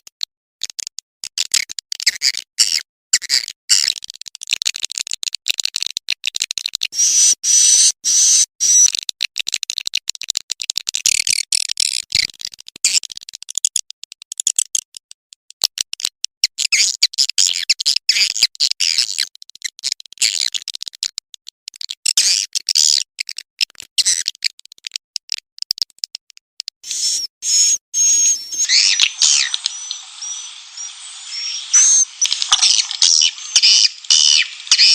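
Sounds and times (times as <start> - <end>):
swiftlets twittering: 7.0 - 8.9, 26.8 - 34.9.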